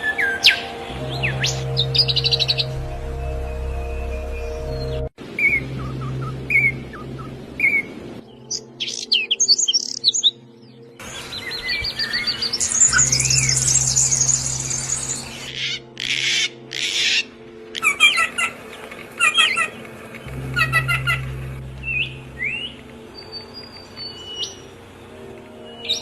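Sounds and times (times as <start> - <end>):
songbirds chirping: 0.0 - 26.0
rapid high bird trill: 11.1 - 18.6.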